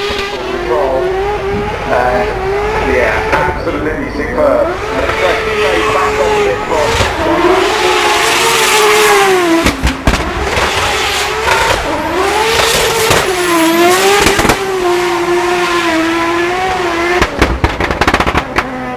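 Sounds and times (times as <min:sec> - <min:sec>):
car engine revving high: 0:00.0 - 0:18.9
exhaust pops and crackles: 0:06.8 - 0:14.7, 0:17.1 - 0:18.9.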